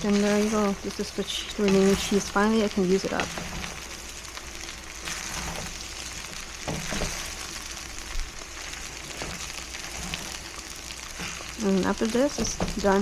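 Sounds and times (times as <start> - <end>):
fried rice sizzling in pan: 0.0 - 13.0.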